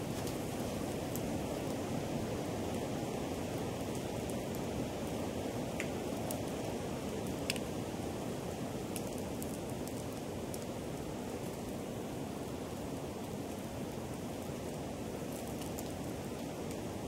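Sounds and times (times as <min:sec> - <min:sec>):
wood crackling and popping: 0:00.0 - 0:01.8.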